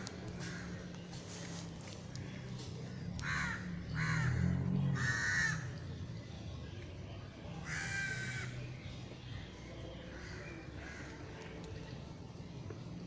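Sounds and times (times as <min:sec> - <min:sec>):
bird cawing harshly: 0:03.2 - 0:04.4, 0:05.0 - 0:05.7.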